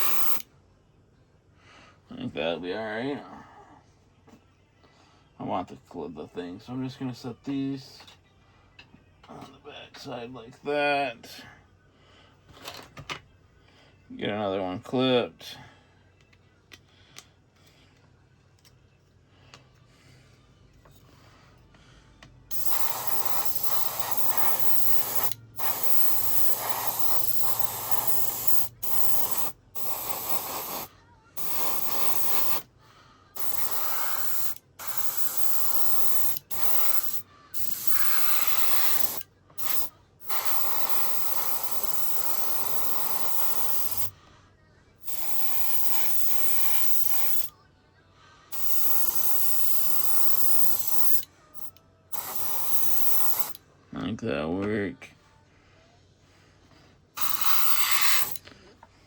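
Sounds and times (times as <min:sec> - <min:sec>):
aerosol spray can hissing: 0:00.0 - 0:00.4, 0:22.5 - 0:32.7, 0:33.4 - 0:44.1, 0:45.0 - 0:47.5, 0:48.5 - 0:53.6, 0:57.2 - 0:58.4.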